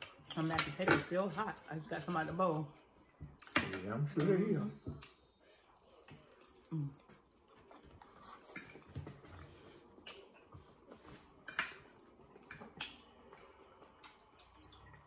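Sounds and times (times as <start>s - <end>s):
people chewing food: 1.7s - 15.0s
cutlery clicking on plates: 11.4s - 11.9s.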